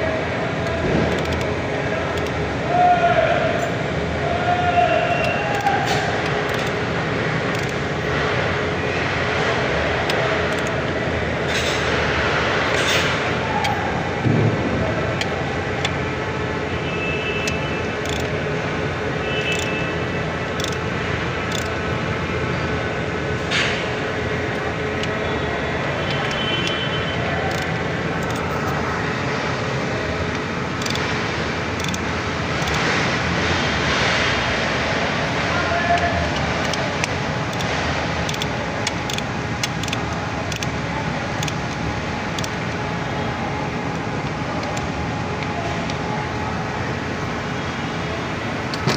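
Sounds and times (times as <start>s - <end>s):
forklift engine running: 0.0s - 48.9s
short clicks: 5.2s - 6.8s, 7.5s - 7.8s, 17.4s - 18.4s, 19.4s - 19.8s, 20.5s - 20.8s, 21.5s - 21.8s, 26.0s - 26.8s, 27.4s - 28.7s, 30.3s - 31.1s, 31.8s - 32.0s, 35.9s - 40.8s.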